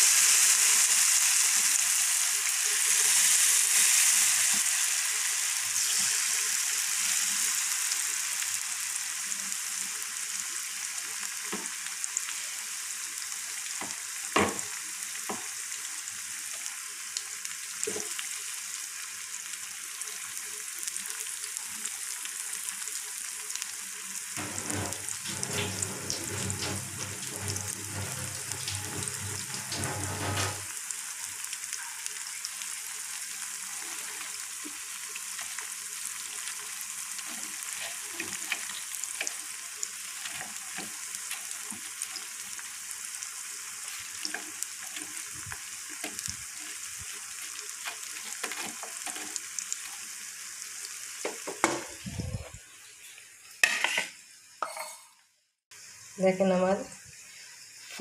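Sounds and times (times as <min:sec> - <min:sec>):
food deep-frying in hot oil: 0:00.0 - 0:54.7, 0:55.7 - 0:58.0.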